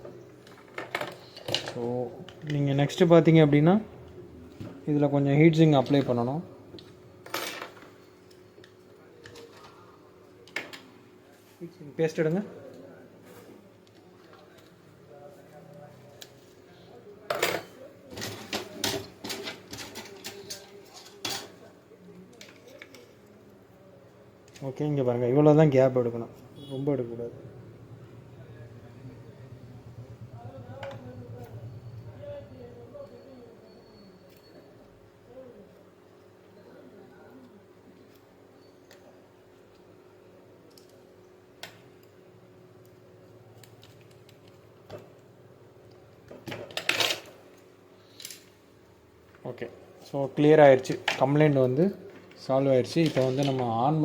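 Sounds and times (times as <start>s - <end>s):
tools clicking and clattering: 17.3s - 21.6s, 50.9s - 53.7s.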